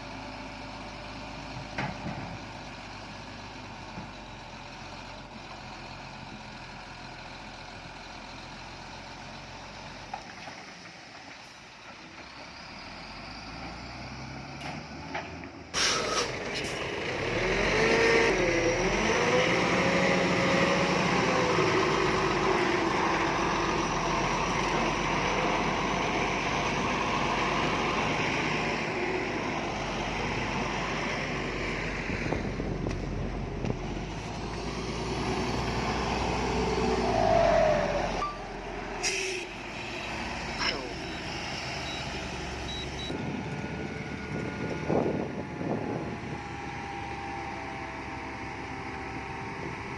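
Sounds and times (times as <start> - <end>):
heavy diesel engine running: 15.7 - 49.9.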